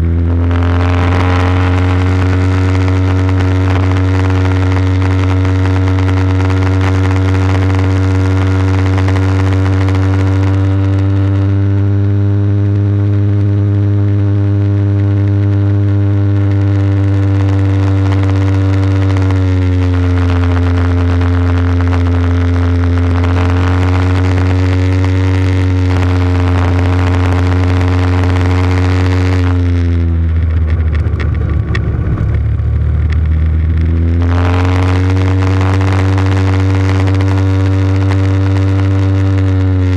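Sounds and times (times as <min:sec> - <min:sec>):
small motorcycle engine running: 0:00.0 - 0:39.9.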